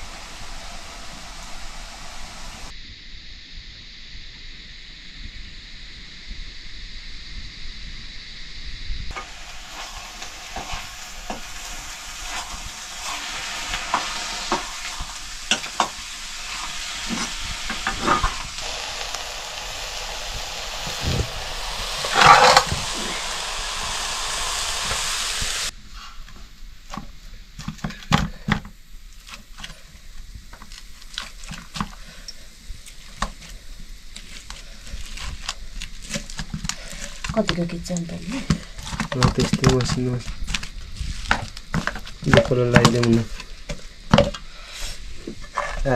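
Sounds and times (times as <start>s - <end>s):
food sizzling in hot oil: 0.0s - 2.7s, 9.1s - 25.8s, 29.2s - 45.9s
loud crackle: 0.0s - 2.7s, 9.1s - 25.8s, 29.1s - 44.1s
utensil scraping pan: 9.1s - 18.8s, 20.8s - 26.2s.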